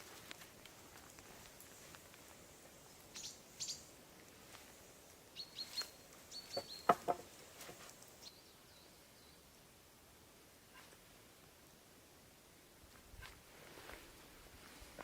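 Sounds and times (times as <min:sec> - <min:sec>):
faint forest ambience: 0:00.0 - 0:15.0
birds chirping: 0:02.8 - 0:03.9, 0:05.3 - 0:09.4.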